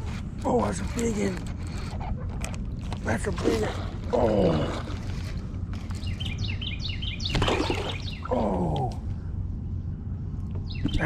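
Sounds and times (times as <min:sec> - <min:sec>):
songbird chirping: 0:05.2 - 0:11.0.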